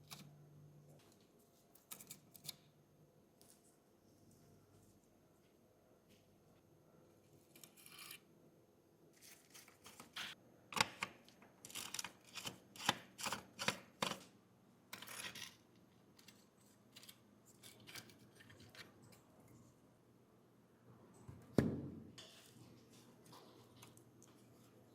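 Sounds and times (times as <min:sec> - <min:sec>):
scraping and clicking on model car: 0:07.5 - 0:08.3, 0:11.6 - 0:14.3, 0:15.0 - 0:19.2.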